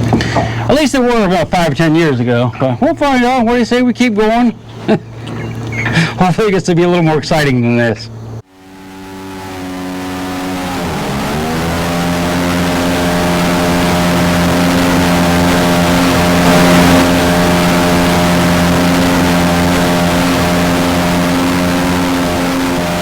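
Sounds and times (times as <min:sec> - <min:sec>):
jet boat engine revving: 0:00.0 - 0:01.7, 0:04.5 - 0:06.3, 0:08.1 - 0:23.0.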